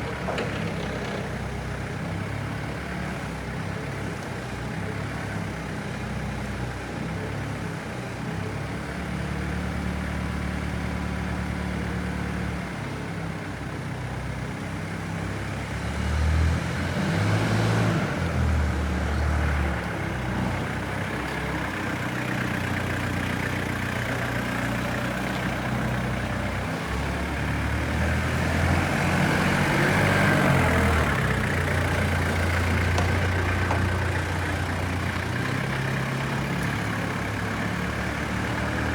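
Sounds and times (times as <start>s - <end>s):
forklift diesel engine revving: 15.9s - 38.9s.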